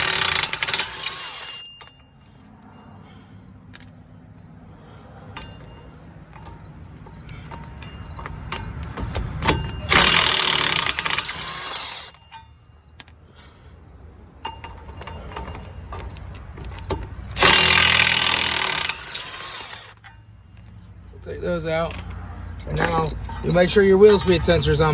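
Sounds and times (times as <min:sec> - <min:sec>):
impact wrench hammering: 0:00.0 - 0:02.1, 0:05.4 - 0:13.2, 0:14.4 - 0:20.8.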